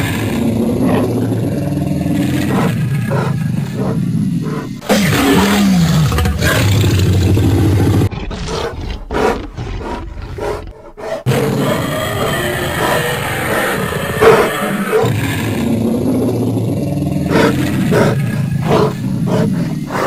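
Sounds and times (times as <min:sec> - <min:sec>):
cartoon voices roaring and screaming: 0:04.8 - 0:09.6, 0:11.2 - 0:20.0.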